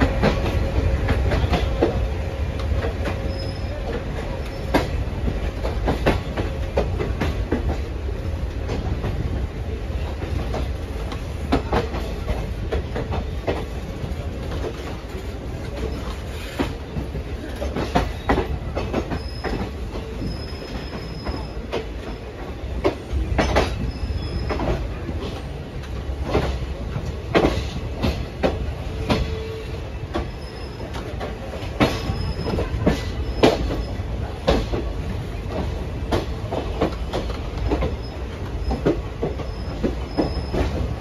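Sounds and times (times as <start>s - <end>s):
train wheels rumbling on track: 0.0s - 41.0s
faint thin squeal: 3.2s - 3.8s, 19.2s - 22.3s, 30.3s - 31.0s.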